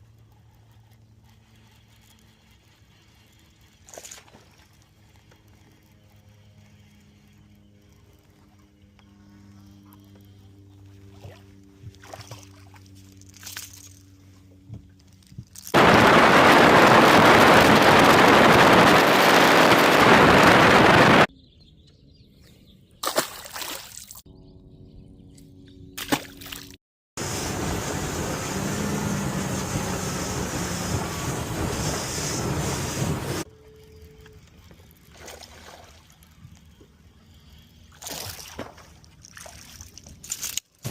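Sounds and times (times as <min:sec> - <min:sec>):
low motor hum: 0:00.0 - 0:23.0, 0:24.3 - 0:40.3
rushing wind and water: 0:15.8 - 0:21.3, 0:27.2 - 0:33.4.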